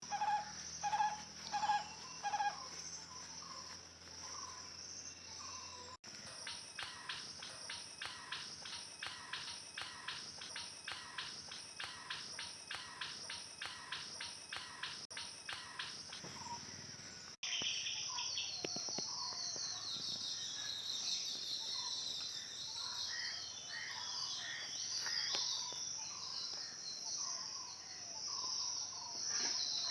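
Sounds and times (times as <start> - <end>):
high-pitched insect drone: 6.2 - 16.7.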